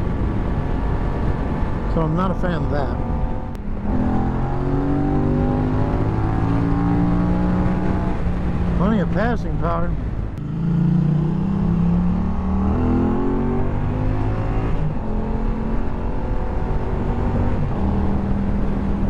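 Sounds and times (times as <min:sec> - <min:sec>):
motorcycle engine accelerating: 0:02.8 - 0:09.2, 0:10.2 - 0:19.0.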